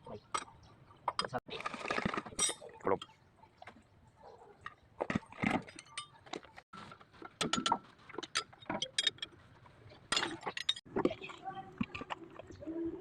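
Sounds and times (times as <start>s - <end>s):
metal tools clinking: 7.4s - 9.4s, 10.0s - 10.9s.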